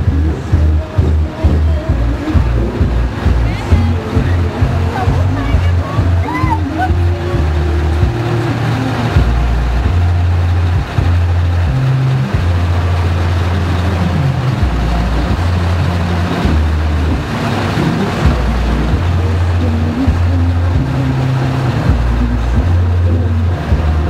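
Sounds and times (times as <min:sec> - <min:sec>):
truck engines droning: 0:00.0 - 0:24.0.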